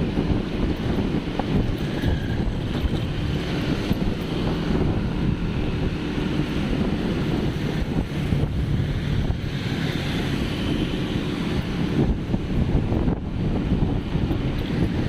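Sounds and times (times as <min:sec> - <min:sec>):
low engine hum: 0:00.0 - 0:15.0
wind buffeting microphone: 0:00.0 - 0:15.0.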